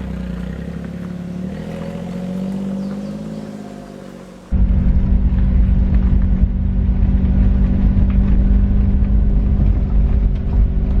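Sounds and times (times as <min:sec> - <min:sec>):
low rumble with droning hum: 0:04.5 - 0:11.0.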